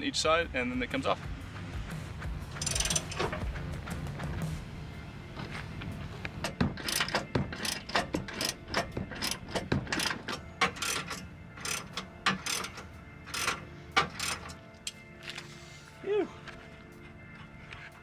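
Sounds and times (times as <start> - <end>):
socket ratchet clicking: 2.6 - 3.4, 6.8 - 14.6.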